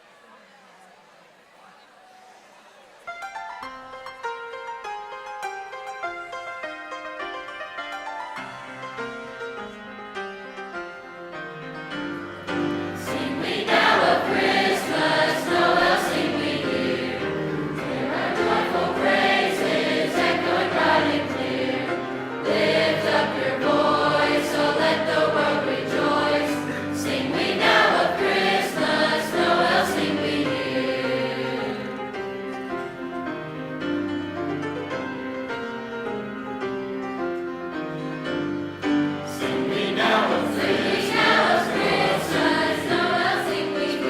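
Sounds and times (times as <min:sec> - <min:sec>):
piano accompaniment: 0:03.1 - 0:44.0
choir singing: 0:12.5 - 0:33.0, 0:39.0 - 0:44.0.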